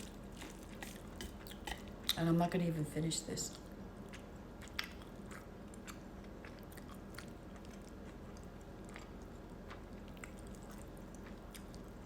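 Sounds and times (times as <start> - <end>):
person chewing food: 0.0 - 2.2, 3.5 - 12.0.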